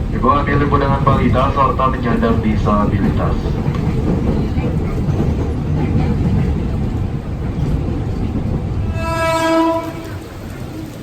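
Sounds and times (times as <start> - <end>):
electric train rumbling: 0.0 - 11.0
train horn: 8.9 - 10.5.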